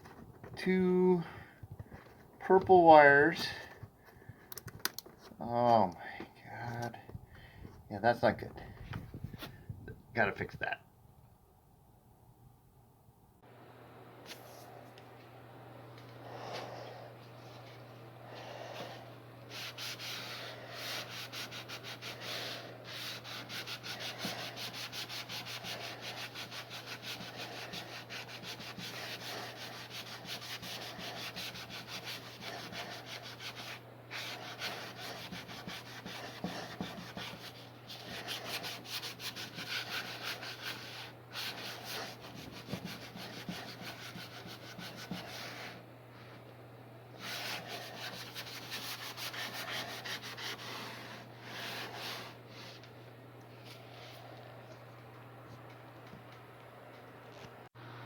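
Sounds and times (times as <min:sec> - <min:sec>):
steady low hum: 0:00.0 - 0:58.0
hand scrubbing or sanding strokes: 0:18.6 - 0:45.8, 0:47.2 - 0:52.8.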